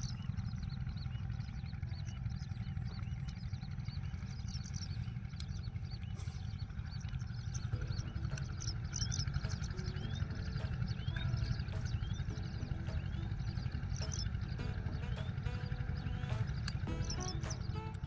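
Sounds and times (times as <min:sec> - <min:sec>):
low rumble: 0:00.0 - 0:18.0
small birds chirping: 0:00.0 - 0:18.0.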